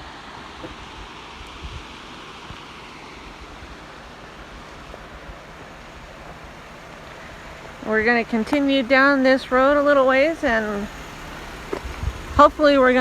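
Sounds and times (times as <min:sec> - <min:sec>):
stream water rushing: 0:00.0 - 0:13.0
wind on microphone: 0:00.6 - 0:02.6, 0:09.7 - 0:13.0.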